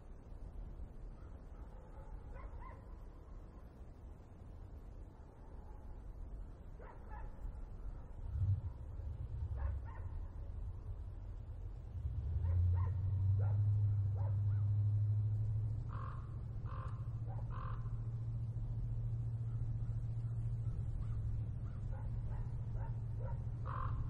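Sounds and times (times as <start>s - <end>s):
dogs barking: 1.2s - 3.0s, 6.8s - 7.4s, 9.1s - 10.5s, 12.3s - 14.8s, 15.9s - 17.9s, 19.4s - 24.0s
low steady rumble: 1.9s - 24.0s
birds calling: 15.8s - 18.4s, 19.3s - 24.0s
harsh bird calls: 23.6s - 24.0s.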